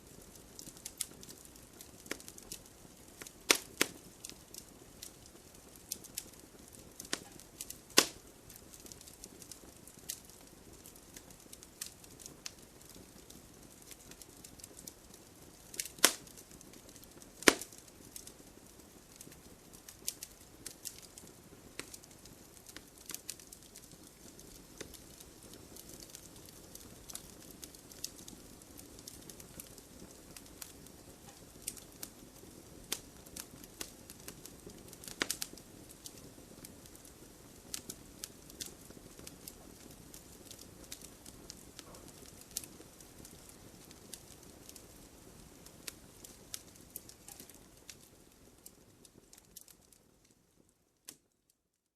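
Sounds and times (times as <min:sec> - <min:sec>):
wood fire crackling: 0:00.0 - 0:51.8
loud sharp fire pops: 0:03.5 - 0:04.4, 0:07.1 - 0:08.2, 0:15.7 - 0:16.4, 0:17.4 - 0:17.8.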